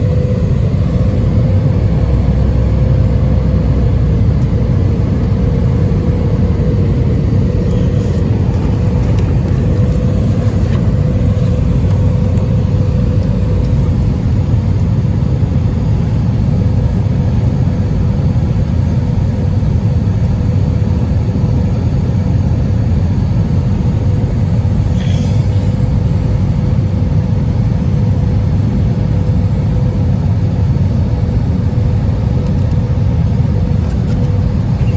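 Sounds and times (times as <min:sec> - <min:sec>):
aircraft cabin engine rumble: 0:00.0 - 0:34.9
constant hum: 0:00.0 - 0:34.9.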